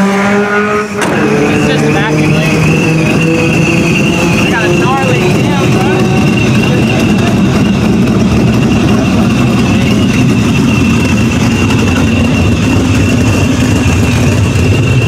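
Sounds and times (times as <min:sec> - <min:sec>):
car engine idling: 0:00.2 - 0:15.0
high whine: 0:00.4 - 0:15.0.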